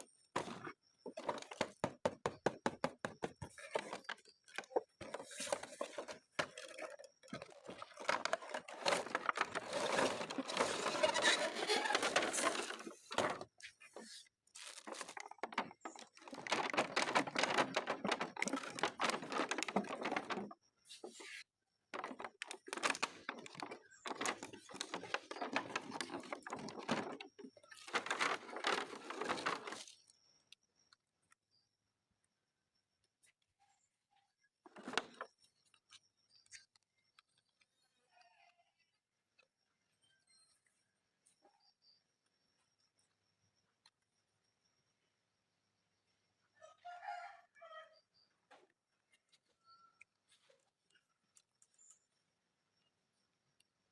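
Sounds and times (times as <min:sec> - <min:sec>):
packaging crinkling and tearing: 0:16.2 - 0:20.4.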